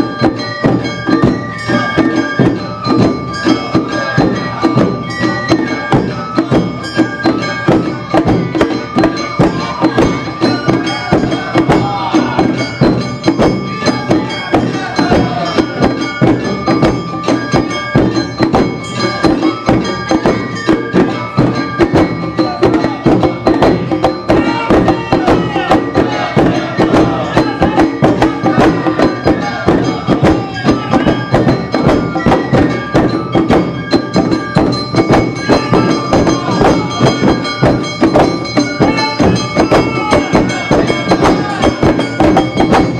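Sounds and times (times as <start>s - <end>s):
drums beating fast rhythm: 0.0s - 42.9s
shamisen: 0.0s - 42.9s
bamboo flute: 9.0s - 12.8s, 24.3s - 31.3s.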